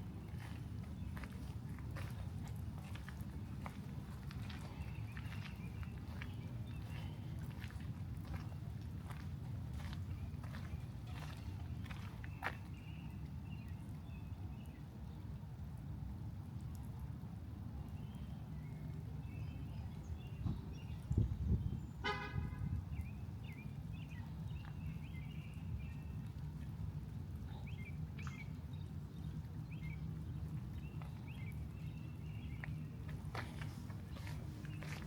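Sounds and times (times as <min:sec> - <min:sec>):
small birds chirping: 0:00.1 - 0:14.8, 0:17.8 - 0:22.1, 0:22.9 - 0:26.4, 0:27.4 - 0:35.0
short horn toot: 0:22.0 - 0:22.7.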